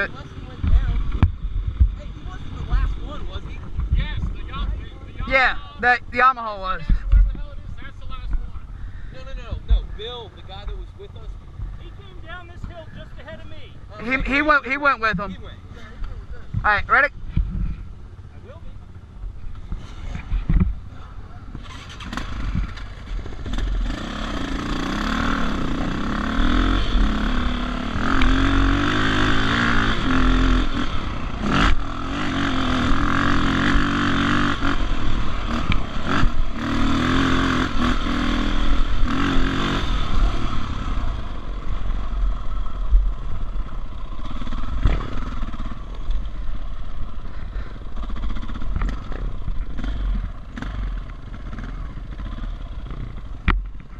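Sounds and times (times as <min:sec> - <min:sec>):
dirt bike engine revving: 0:18.9 - 0:53.8.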